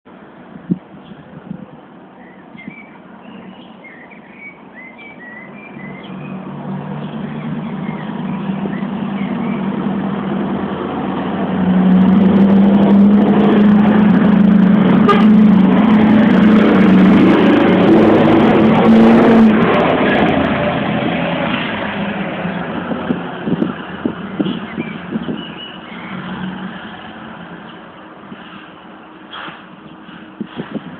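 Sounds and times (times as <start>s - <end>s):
truck diesel engine running: 7.0s - 25.2s.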